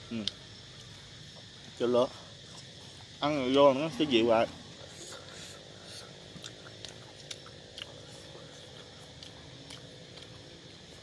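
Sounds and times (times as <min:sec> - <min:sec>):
person chewing soft fruit: 0:00.0 - 0:03.6, 0:04.7 - 0:11.0.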